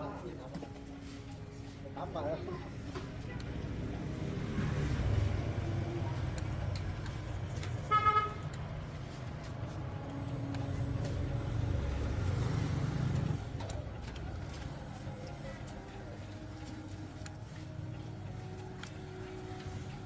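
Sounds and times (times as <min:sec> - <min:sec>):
road traffic rumble: 0:00.0 - 0:20.0
vehicle horn toot: 0:07.9 - 0:08.4.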